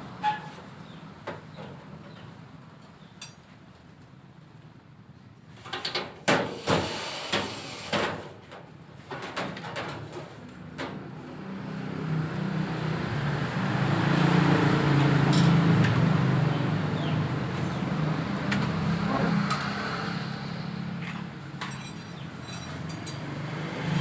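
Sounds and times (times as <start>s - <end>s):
low motor hum: 18.0s - 20.7s.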